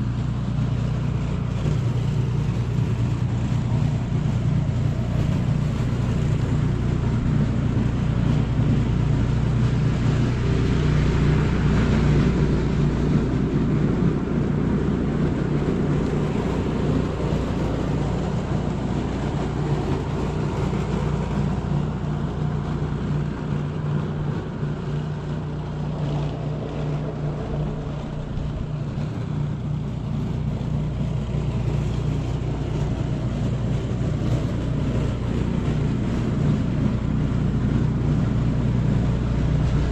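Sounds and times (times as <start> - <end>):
low engine drone: 0.0 - 39.9
rushing noise: 0.0 - 39.9.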